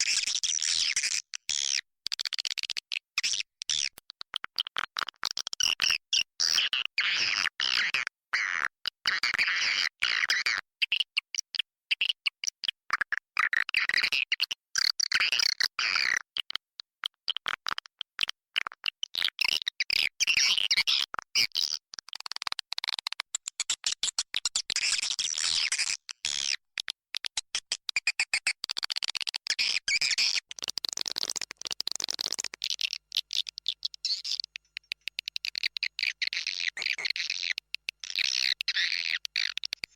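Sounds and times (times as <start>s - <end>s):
swiftlets twittering and chirping: 32.3s - 39.9s.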